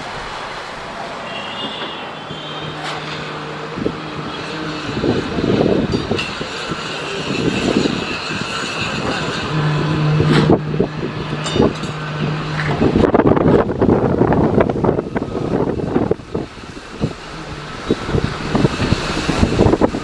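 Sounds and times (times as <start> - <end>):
jet engine noise: 0.0 - 20.0
rough gusty surges: 0.0 - 20.0.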